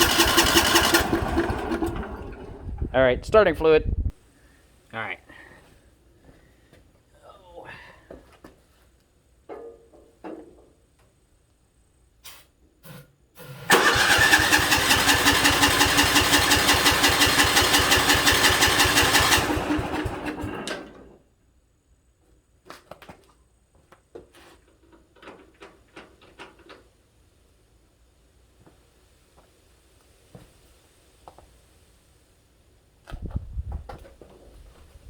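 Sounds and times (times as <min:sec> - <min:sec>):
lawn tractor engine cranking: 0:00.0 - 0:02.9, 0:13.4 - 0:21.2.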